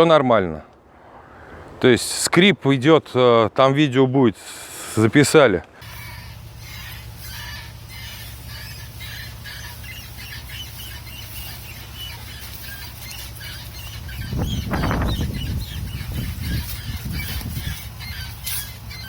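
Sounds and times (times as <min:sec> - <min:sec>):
wheel squeaking: 0:05.8 - 0:19.0.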